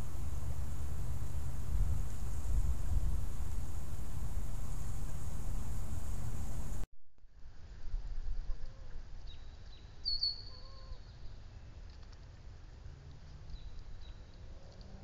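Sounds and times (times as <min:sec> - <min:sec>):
low background rumble: 0:00.0 - 0:06.9
short high bird chirps: 0:09.3 - 0:11.2.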